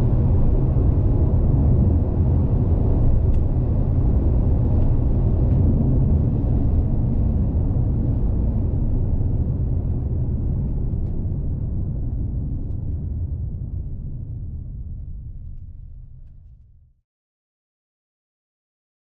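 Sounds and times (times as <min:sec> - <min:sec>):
car engine rumble: 0:00.0 - 0:16.3.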